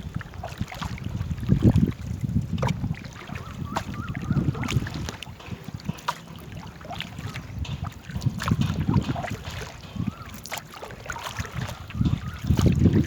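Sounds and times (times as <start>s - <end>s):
water and paddle noise: 0.0s - 13.0s
wind gusting on microphone: 0.0s - 13.0s
sharp knocks: 5.0s - 10.8s.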